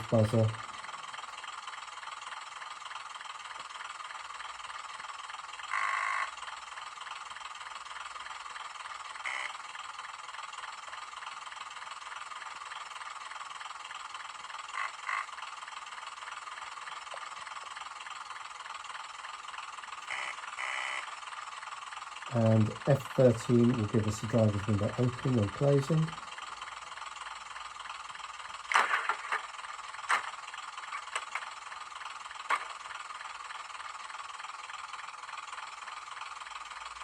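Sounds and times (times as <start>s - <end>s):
diesel engine idling: 0.0s - 37.0s
short buzzer tones: 5.7s - 6.3s, 9.3s - 9.6s, 20.1s - 21.1s.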